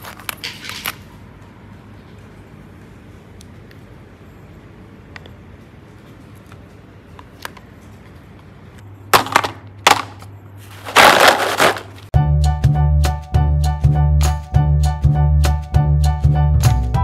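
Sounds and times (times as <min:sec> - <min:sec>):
plastic containers clattering: 0:09.2 - 0:12.1
music with steady beat: 0:12.2 - 0:17.0.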